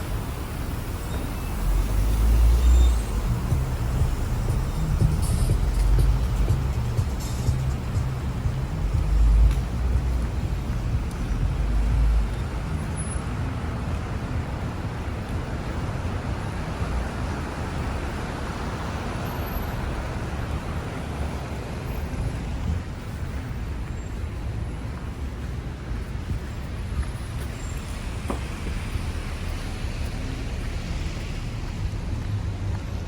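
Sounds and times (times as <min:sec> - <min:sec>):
city road traffic: 0:00.0 - 0:33.0
heavy low rumble: 0:01.5 - 0:13.7.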